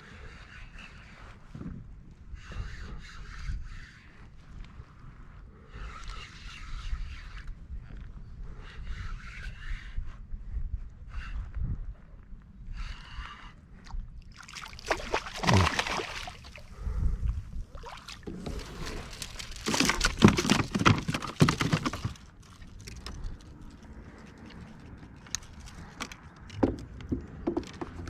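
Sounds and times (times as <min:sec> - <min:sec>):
water splashing around kayak: 0:14.3 - 0:16.9, 0:17.6 - 0:23.2.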